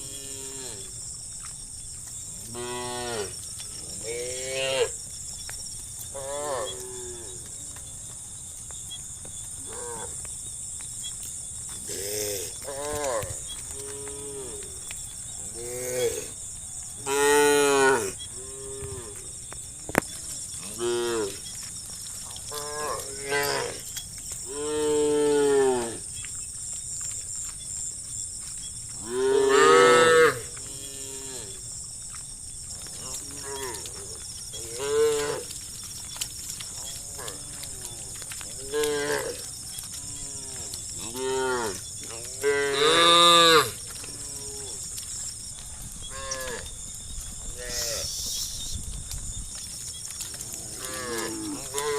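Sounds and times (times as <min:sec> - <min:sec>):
cattle mooing: 0:50.5 - 0:51.9.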